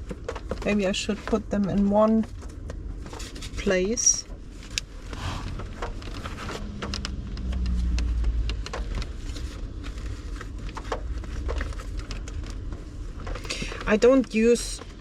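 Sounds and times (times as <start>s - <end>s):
low rumble: 4.8s - 10.5s.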